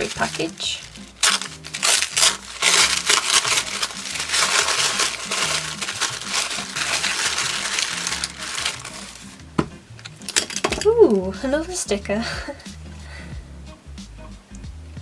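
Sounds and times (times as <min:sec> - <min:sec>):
packaging crinkling: 0:00.0 - 0:09.4
soft background music: 0:00.0 - 0:15.0.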